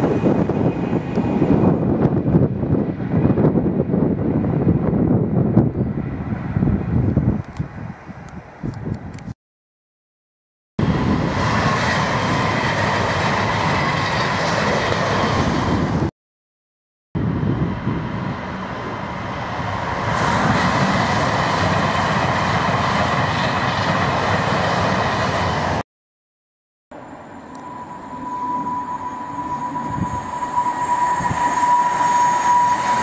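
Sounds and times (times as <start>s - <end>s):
train wheels rumbling on rail: 0.0s - 8.0s, 10.8s - 16.1s, 17.2s - 25.8s, 27.1s - 33.0s
thin high whine: 26.9s - 33.0s.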